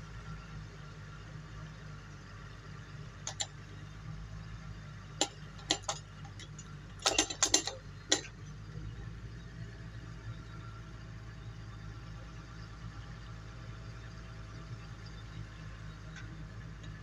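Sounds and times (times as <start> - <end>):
metal tools clicking and clinking: 3.3 - 3.6, 5.2 - 8.3.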